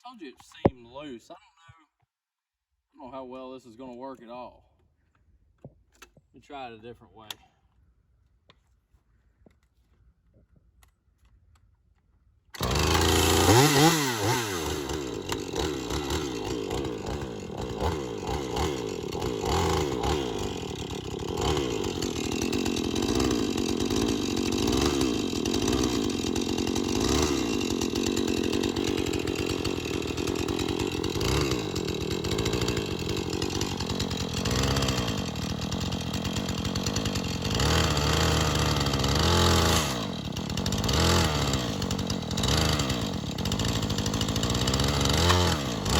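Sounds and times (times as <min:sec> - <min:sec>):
chainsaw engine at high revs: 0:12.6 - 0:45.9.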